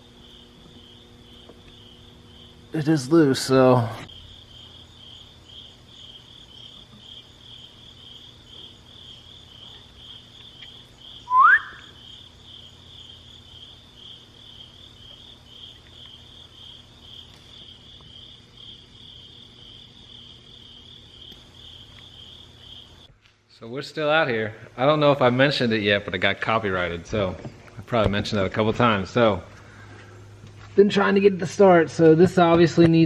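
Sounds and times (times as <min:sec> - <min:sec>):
crickets chirping: 0:00.0 - 0:25.9.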